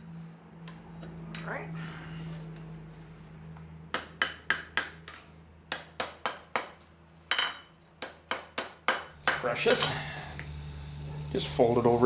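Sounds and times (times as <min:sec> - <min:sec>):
hammer striking steel on anvil: 0:03.9 - 0:09.5
low steady hum: 0:09.1 - 0:12.0.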